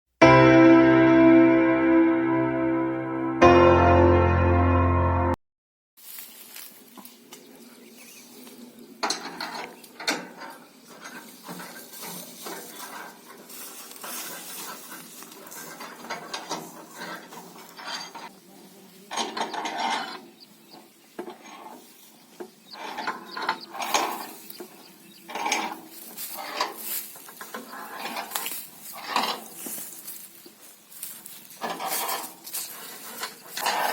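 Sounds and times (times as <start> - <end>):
machinery clanking and rattling: 22.7 - 29.5, 31.6 - 33.9.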